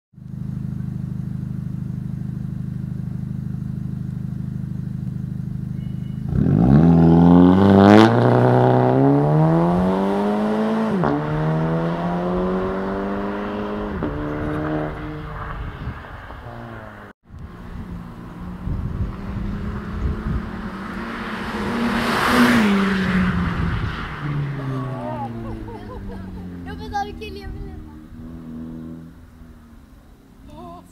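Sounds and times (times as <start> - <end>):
car engine idling and revving: 0.2 - 30.9.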